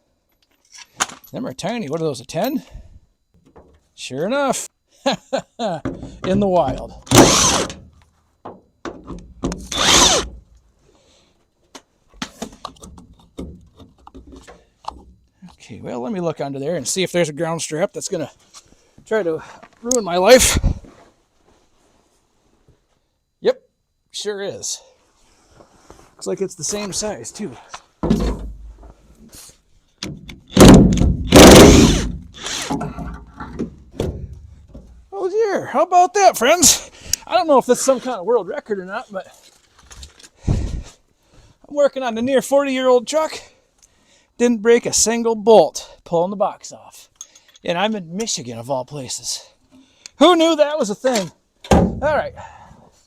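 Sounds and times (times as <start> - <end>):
power tool whirring: 7.1 - 7.8, 9.6 - 10.4, 31.3 - 32.8
metal thunk: 28.0 - 28.7, 51.6 - 52.1.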